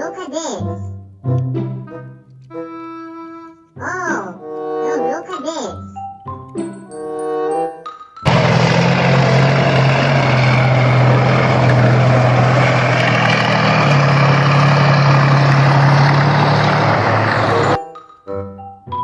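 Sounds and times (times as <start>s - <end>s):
vehicle engine running: 8.3s - 17.8s.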